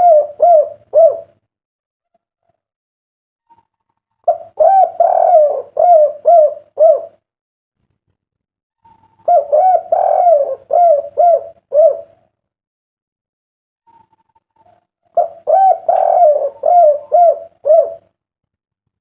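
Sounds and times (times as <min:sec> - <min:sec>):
dove cooing: 0:00.0 - 0:01.4, 0:03.5 - 0:07.2, 0:08.8 - 0:12.3, 0:13.9 - 0:18.2.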